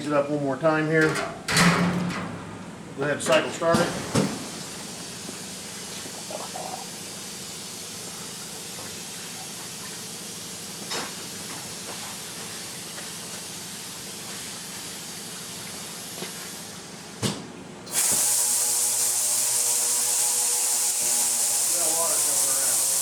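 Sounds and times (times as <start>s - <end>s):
agitated water hissing: 4.0s - 17.0s, 17.9s - 23.0s.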